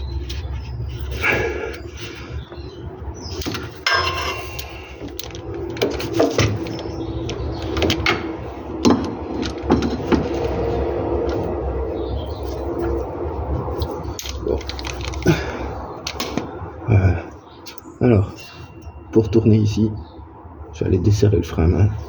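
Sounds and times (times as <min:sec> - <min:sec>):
metal tools clinking: 0:03.2 - 0:11.5, 0:13.7 - 0:16.4
metal scraping: 0:03.2 - 0:15.2.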